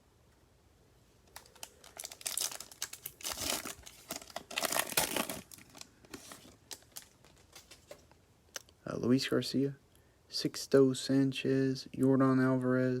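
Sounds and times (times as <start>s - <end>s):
wrapper tearing and crumpling: 1.3s - 8.0s.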